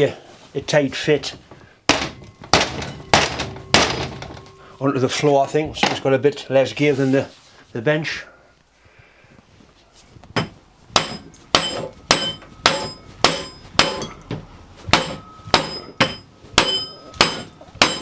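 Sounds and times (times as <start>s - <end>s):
hammer striking metal washer: 1.9s - 4.9s, 10.4s - 18.0s.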